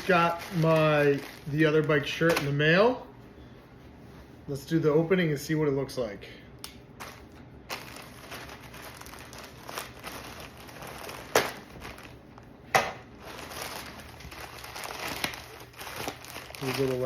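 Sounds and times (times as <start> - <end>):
wrapping crinkling and rustling: 0.0 - 3.0, 7.0 - 12.5, 13.1 - 17.0
sharp paper rips: 13.4 - 17.0.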